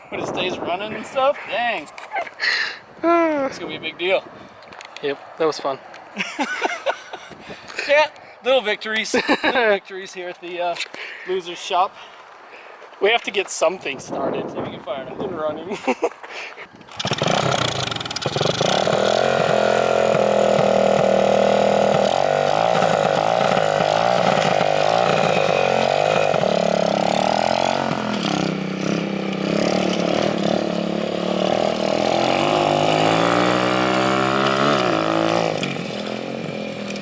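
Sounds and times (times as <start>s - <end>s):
minibike engine revving: 16.9s - 37.0s.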